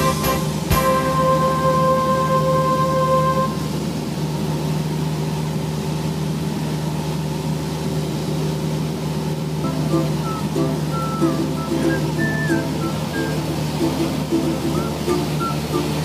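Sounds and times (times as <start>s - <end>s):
light aircraft engine and propeller drone: 0.0s - 16.0s
held steady tone: 9.6s - 16.0s.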